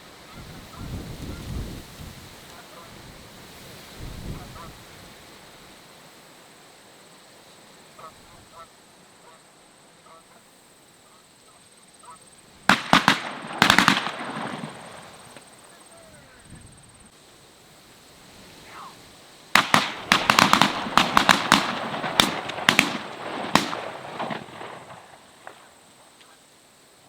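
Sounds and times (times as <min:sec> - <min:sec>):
geese honking: 0:02.5 - 0:03.0, 0:04.3 - 0:04.8, 0:07.9 - 0:09.4, 0:10.0 - 0:16.4, 0:18.6 - 0:19.0, 0:19.6 - 0:24.6
shotgun blasts: 0:12.7 - 0:15.5, 0:19.6 - 0:25.7.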